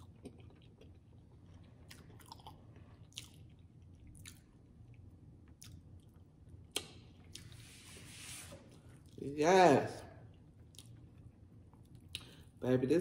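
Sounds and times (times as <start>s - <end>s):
person chewing meat: 0.0s - 7.6s, 10.3s - 12.6s
wet mouth clicks and smacks: 6.7s - 7.5s, 11.8s - 12.5s.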